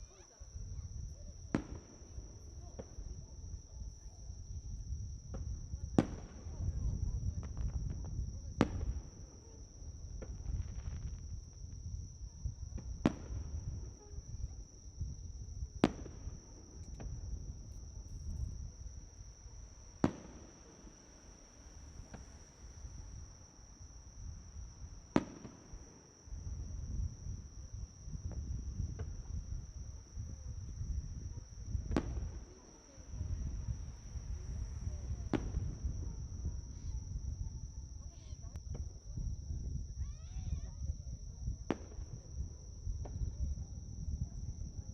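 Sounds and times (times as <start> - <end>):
high insect trill: 0.0 - 44.9
fireworks bursting: 1.4 - 3.2, 5.3 - 11.9, 12.7 - 14.5, 15.7 - 37.0, 41.6 - 42.2.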